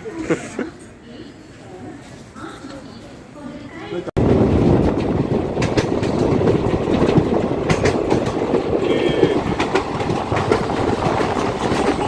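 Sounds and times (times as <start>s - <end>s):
train rumble: 4.2s - 12.0s
wheels clicking over rails: 4.3s - 12.0s.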